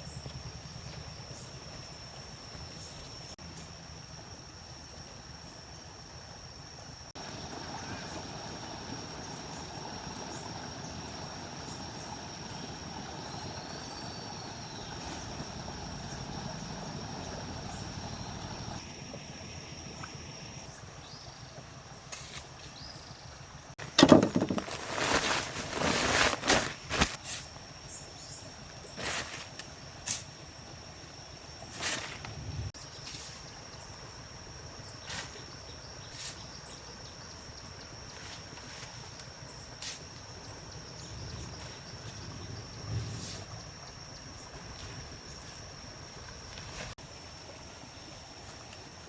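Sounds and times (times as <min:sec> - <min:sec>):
high insect drone: 0:00.0 - 0:20.7.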